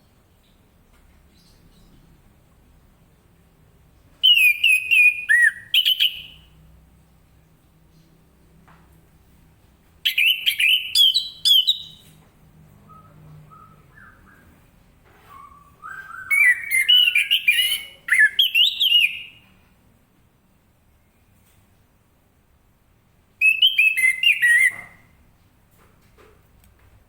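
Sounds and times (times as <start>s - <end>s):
thrush singing whistled phrases: 4.2s - 6.5s, 10.1s - 12.0s, 15.3s - 19.5s, 23.4s - 25.1s.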